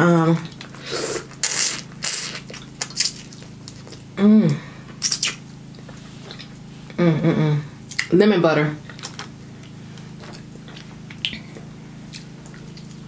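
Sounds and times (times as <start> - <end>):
faint steady hum: 0.0 - 13.0
person chewing wetly: 0.4 - 4.2, 5.0 - 6.6, 8.8 - 13.0
person humming mmm: 4.2 - 4.8, 6.9 - 7.8.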